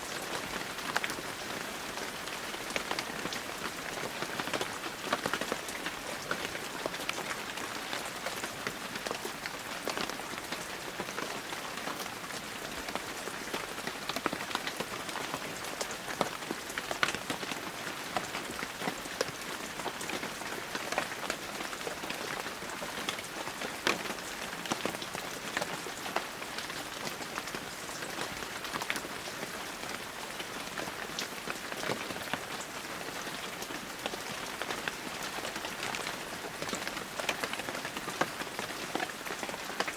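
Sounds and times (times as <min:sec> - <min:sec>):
raindrops pattering on surfaces: 0:00.0 - 0:39.9.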